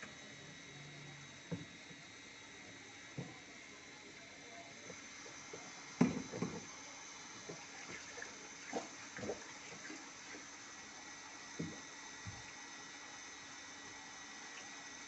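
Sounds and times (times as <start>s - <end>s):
water sloshing in washing machine: 4.8s - 15.0s.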